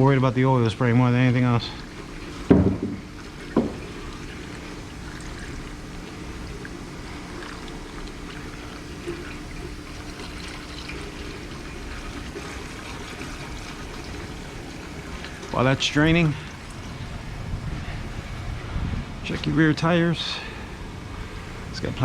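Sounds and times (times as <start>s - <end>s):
oil pouring into a drain pan: 1.8s - 17.3s
brief knocks: 2.5s - 3.0s, 3.6s - 3.8s.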